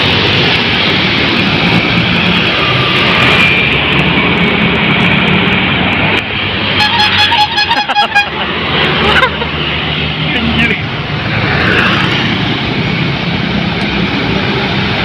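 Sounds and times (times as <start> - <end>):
bus engine and road noise: 0.0 - 15.0
multi-tone bus horn: 6.7 - 8.6.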